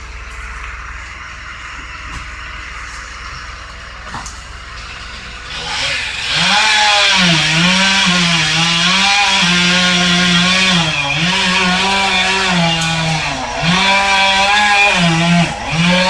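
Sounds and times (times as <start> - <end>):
chainsaw cutting wood: 4.8 - 16.0.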